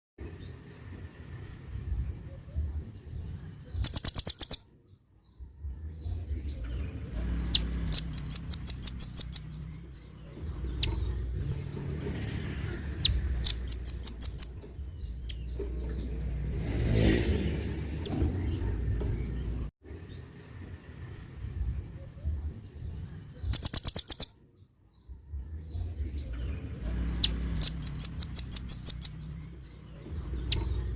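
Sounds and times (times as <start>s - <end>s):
low rumble: 5.3s - 8.3s.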